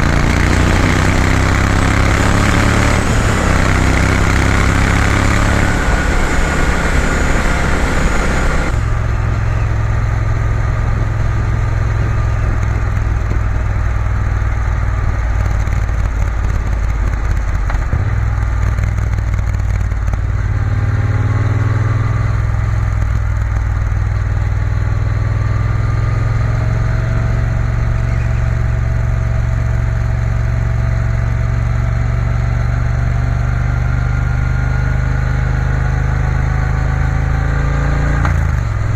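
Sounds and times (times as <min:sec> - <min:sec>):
motorcycle engine running: 0:00.0 - 0:38.9
wind and road hiss: 0:01.2 - 0:20.0.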